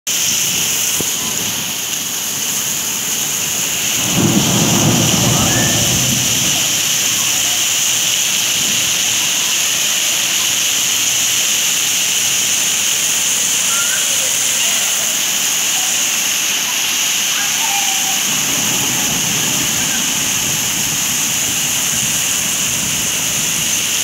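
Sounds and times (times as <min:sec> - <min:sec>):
steady rain hiss: 0:00.1 - 0:24.0
low rumble of thunder: 0:02.5 - 0:09.0, 0:18.2 - 0:24.0.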